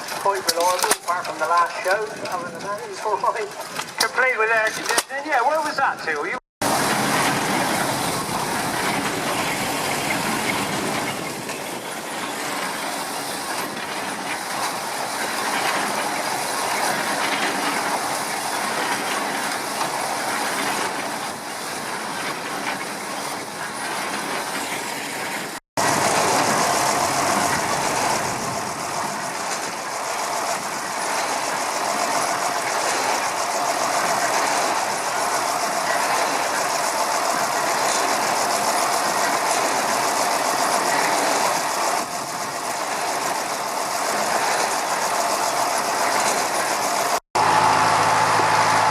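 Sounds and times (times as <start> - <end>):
stationary engines clattering: 0.0 - 48.9.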